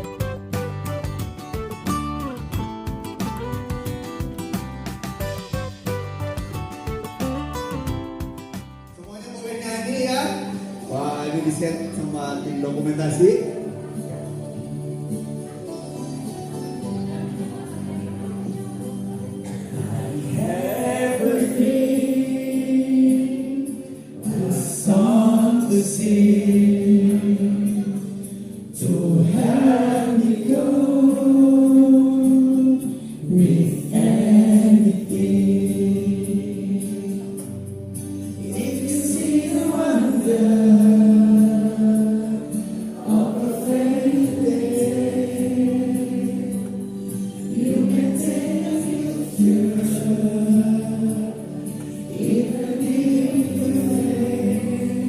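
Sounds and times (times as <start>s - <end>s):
choir singing held notes: 19.3s - 55.0s.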